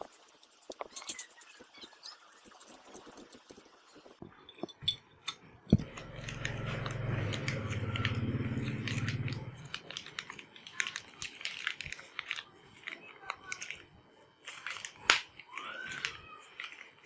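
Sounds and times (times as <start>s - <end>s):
metal engine parts clinking: 4.5s - 8.1s.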